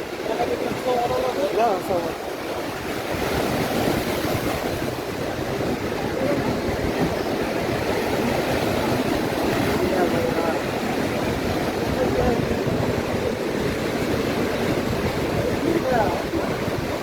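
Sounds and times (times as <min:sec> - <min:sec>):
surf breaking on beach: 0:00.0 - 0:17.0.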